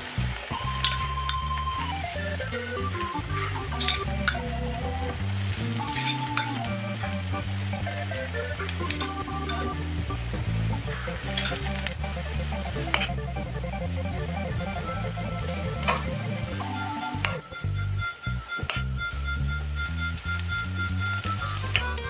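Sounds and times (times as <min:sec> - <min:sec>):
batter sizzling in a hot pan: 0:00.0 - 0:16.4
background music with bass line: 0:00.0 - 0:22.0.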